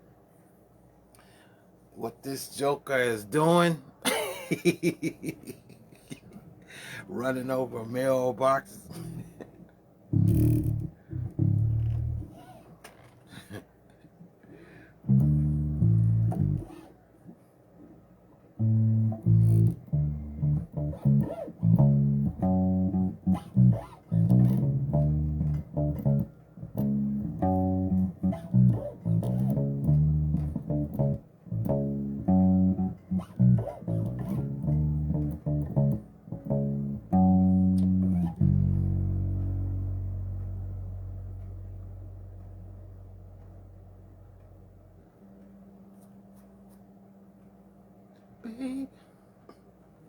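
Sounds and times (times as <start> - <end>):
bass guitar plucked notes: 8.9 - 9.3, 10.1 - 12.4, 15.1 - 16.8, 18.6 - 45.0.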